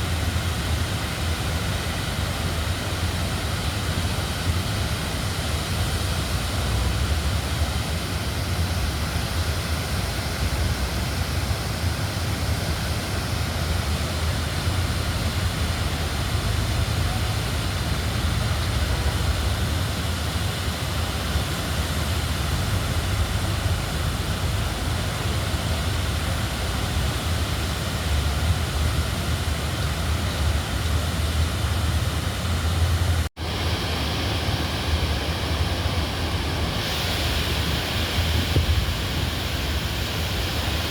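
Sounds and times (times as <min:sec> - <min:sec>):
river water rushing: 0:16.3 - 0:40.9.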